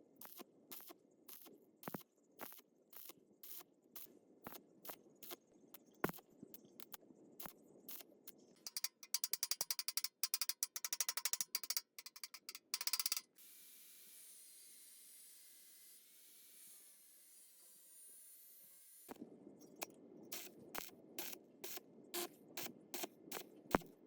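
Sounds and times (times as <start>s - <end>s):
rapid ratchet clicks: 8.6s - 13.4s, 20.4s - 23.8s.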